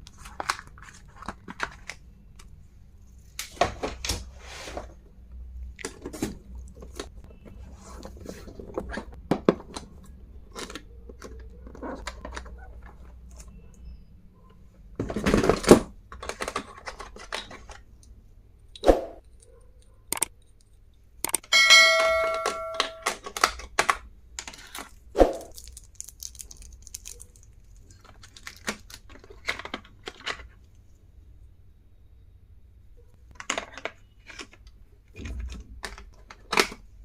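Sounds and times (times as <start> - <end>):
stationery clicks and knocks: 20.1 - 20.4, 21.2 - 24.0
metallic ding: 21.5 - 23.1.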